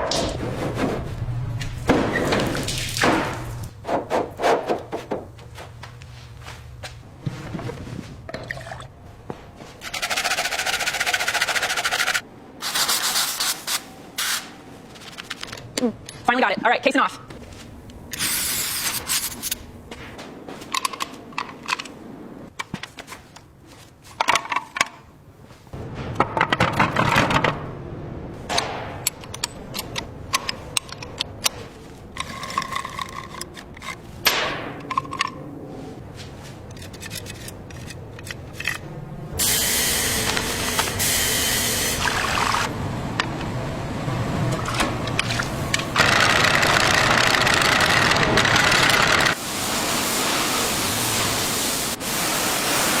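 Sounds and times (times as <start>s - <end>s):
rushing hiss: 49.4s - 53.0s.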